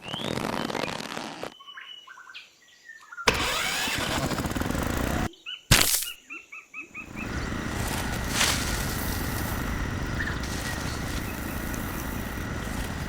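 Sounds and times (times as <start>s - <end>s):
rice mill motor rattling: 3.3s - 5.3s, 7.0s - 13.0s
bird chirps: 5.3s - 13.0s.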